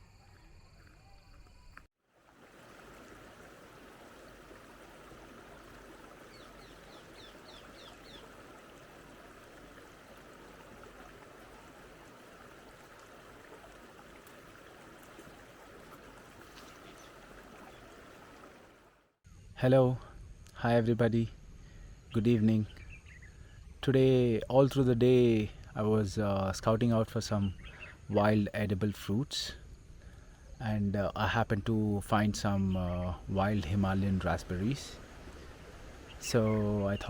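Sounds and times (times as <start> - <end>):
stream running: 2.0 - 19.2, 32.2 - 37.0
bird chirping: 5.8 - 8.8, 16.4 - 18.4, 22.2 - 23.6.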